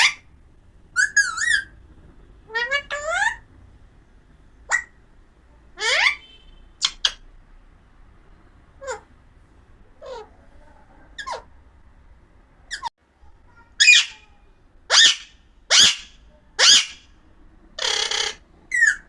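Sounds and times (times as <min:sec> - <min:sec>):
parakeet squawking: 0:00.0 - 0:00.2, 0:01.0 - 0:01.8, 0:02.5 - 0:03.5, 0:04.6 - 0:05.0, 0:05.8 - 0:07.2, 0:08.8 - 0:09.1, 0:10.0 - 0:10.4, 0:11.2 - 0:11.6, 0:13.5 - 0:17.1, 0:17.8 - 0:19.0
parakeet screech: 0:13.8 - 0:14.2, 0:14.9 - 0:17.0, 0:17.8 - 0:19.0.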